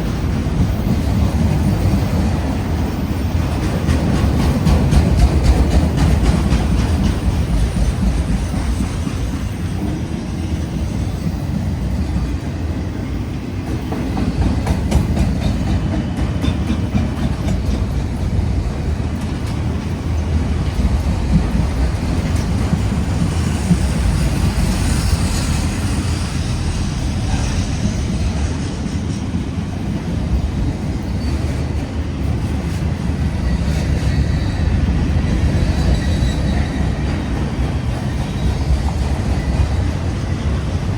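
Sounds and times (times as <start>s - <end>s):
freight train rumbling past: 0.0s - 40.9s
wheels clacking over rail joints: 0.2s - 10.2s, 13.6s - 25.9s
wheel squeal: 33.5s - 37.3s.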